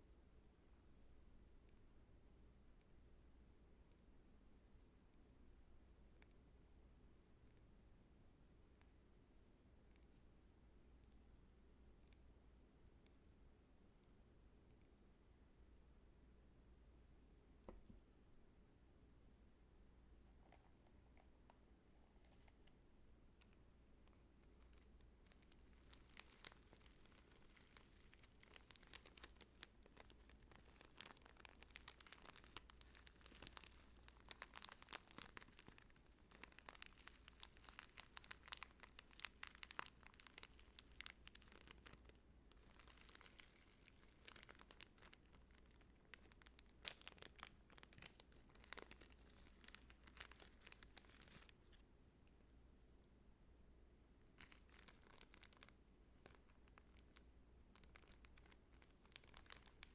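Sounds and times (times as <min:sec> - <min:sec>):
crinkling and rustling: 0:20.4 - 0:22.8, 0:23.4 - 0:51.9, 0:54.3 - 0:59.9
small crackles: 0:20.4 - 0:52.4, 0:54.2 - 0:59.9.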